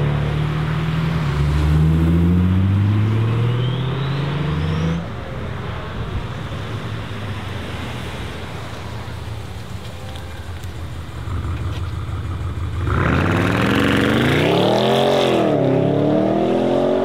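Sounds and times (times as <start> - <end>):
car engine accelerating: 0.0 - 5.2, 10.5 - 17.0
road noise: 0.0 - 17.0.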